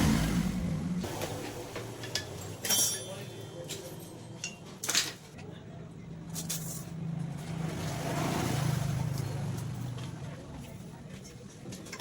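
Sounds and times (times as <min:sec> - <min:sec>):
vehicle engine noise: 0:00.0 - 0:02.0.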